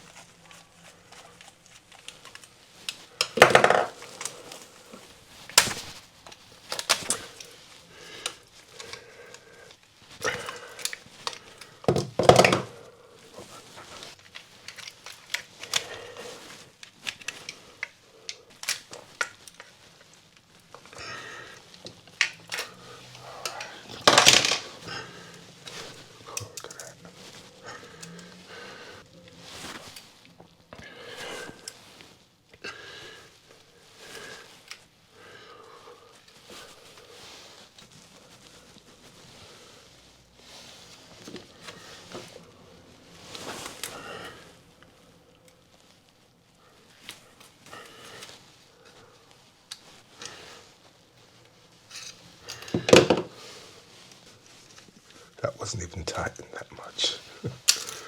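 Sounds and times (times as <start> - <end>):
hand tools clicking and clattering: 2.9 - 4.5, 23.4 - 24.9.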